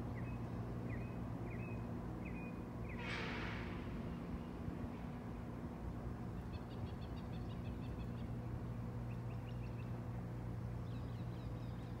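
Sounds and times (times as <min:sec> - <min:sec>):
small songbirds chirping: 0:10.8 - 0:12.0.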